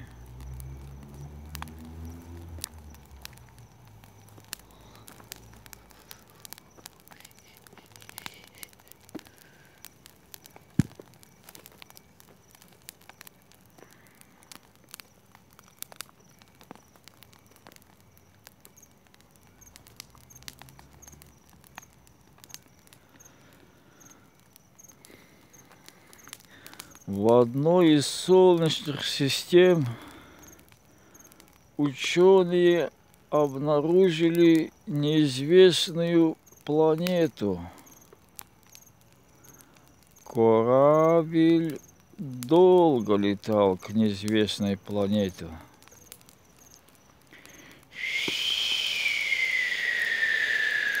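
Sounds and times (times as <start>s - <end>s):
bonfire crackling and popping: 0.0s - 51.0s.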